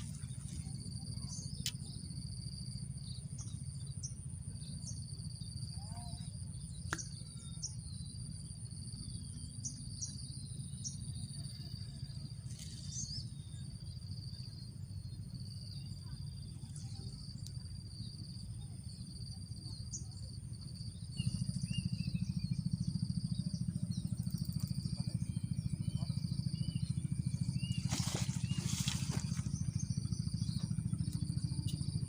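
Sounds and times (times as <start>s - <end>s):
insects droning: 0.0s - 32.0s
steady low rumble: 6.4s - 32.0s.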